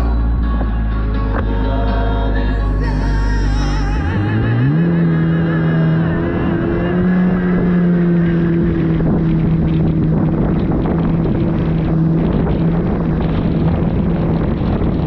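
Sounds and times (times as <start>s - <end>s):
jet ski engine running: 0.0s - 15.0s
wind noise: 0.0s - 15.0s.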